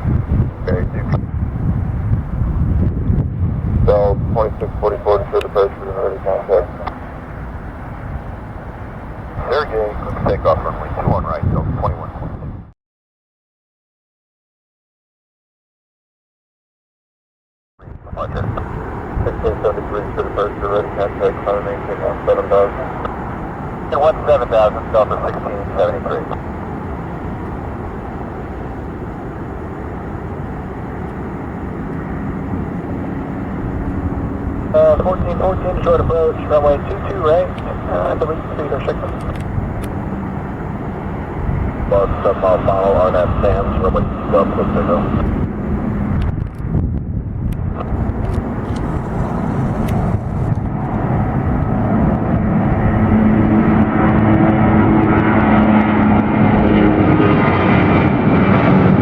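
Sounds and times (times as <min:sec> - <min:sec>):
jet engines rumbling: 0:00.0 - 0:12.7, 0:17.9 - 0:59.0
steady tones: 0:47.8 - 0:56.6.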